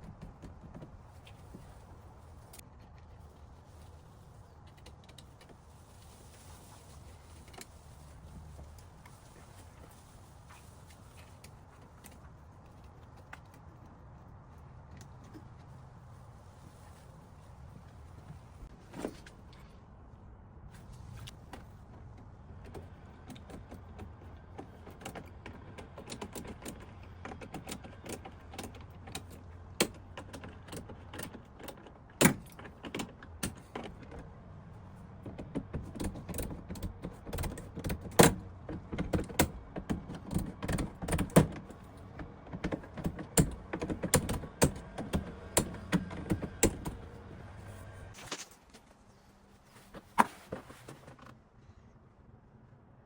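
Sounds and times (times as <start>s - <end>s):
hand tools clicking and knocking: 22.7s - 34.2s, 35.1s - 47.2s.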